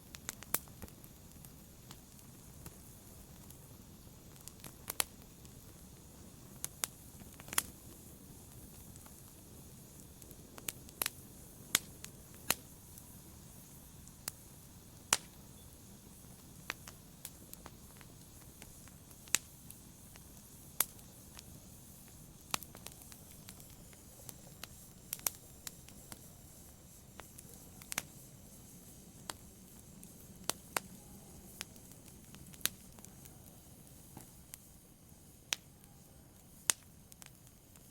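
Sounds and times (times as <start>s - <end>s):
wood fire crackling: 0.0s - 37.9s.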